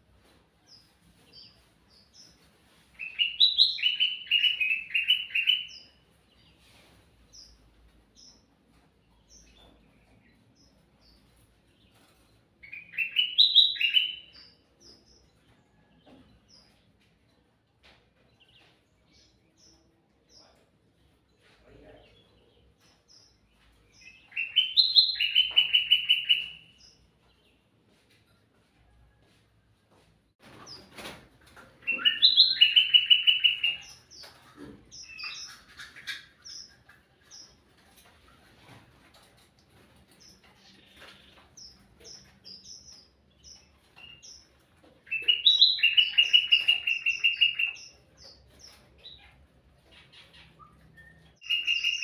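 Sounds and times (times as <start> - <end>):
faint high bird chirps: 45.1 - 52.0.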